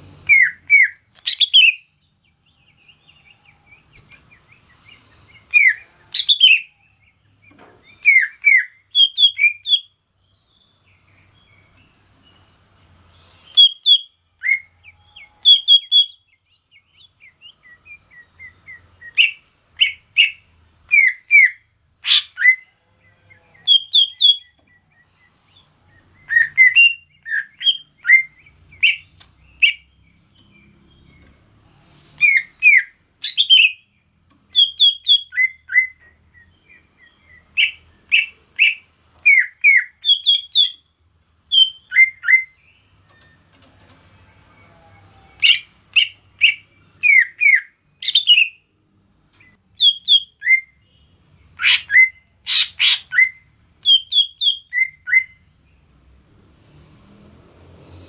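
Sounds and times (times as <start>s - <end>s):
bird singing whistled phrases: 0.2s - 1.9s, 5.5s - 6.7s, 8.0s - 9.9s, 13.5s - 14.7s, 15.4s - 16.2s, 17.0s - 22.7s, 23.7s - 24.6s, 26.2s - 29.8s, 32.2s - 33.8s, 34.5s - 40.8s, 41.5s - 42.6s, 45.4s - 48.6s, 49.8s - 50.8s, 51.6s - 55.4s.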